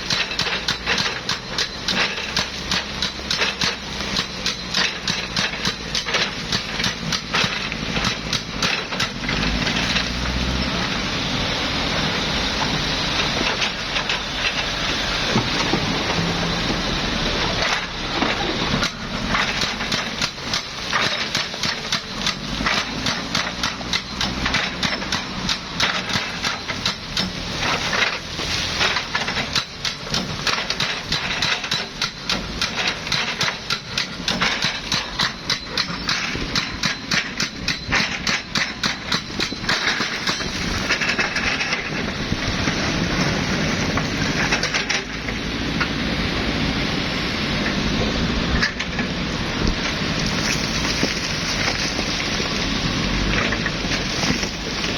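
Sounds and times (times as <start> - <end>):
excavator clattering and rattling: 0.0 - 54.9.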